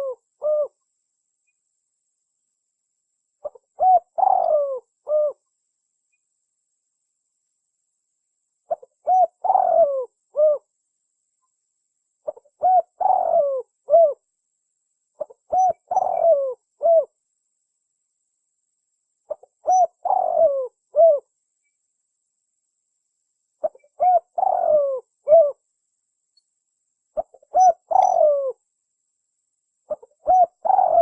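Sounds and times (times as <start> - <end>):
dove cooing: 0.0 - 0.8, 3.4 - 5.4, 8.7 - 10.7, 12.2 - 14.2, 15.2 - 17.2, 19.3 - 21.3, 23.6 - 25.6, 27.2 - 28.6, 29.9 - 31.0.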